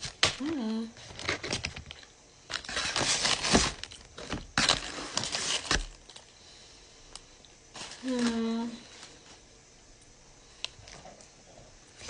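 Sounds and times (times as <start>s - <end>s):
paper wrapper crinkling: 0.0s - 6.4s, 7.7s - 9.4s.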